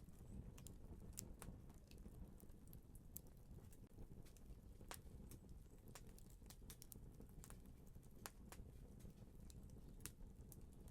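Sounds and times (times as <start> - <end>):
fire crackling and popping: 0.0 - 10.9.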